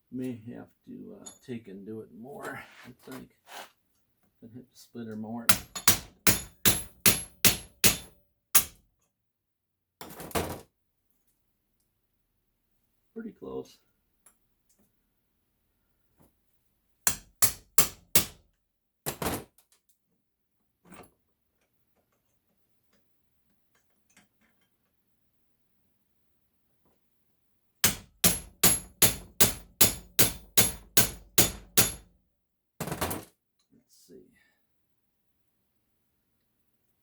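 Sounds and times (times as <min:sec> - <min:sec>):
hammer clanging on metal: 0:05.5 - 0:08.7, 0:27.8 - 0:32.0.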